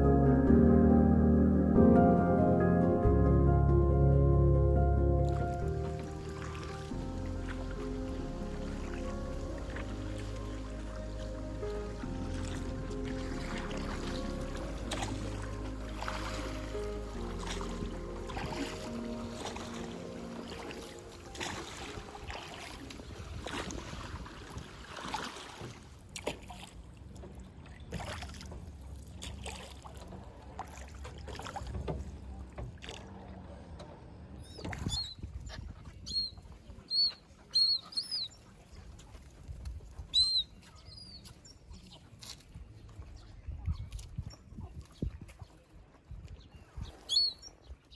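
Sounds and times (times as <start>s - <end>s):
boat engine rumble: 0.0s - 47.9s
water noise: 0.0s - 47.9s
bird chirping: 36.1s - 38.4s, 40.1s - 41.6s, 47.1s - 47.6s.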